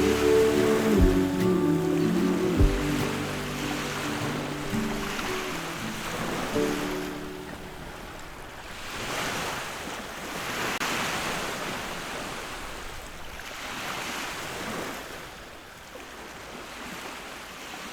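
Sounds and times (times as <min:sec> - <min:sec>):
ocean waves breaking: 0:00.0 - 0:17.9.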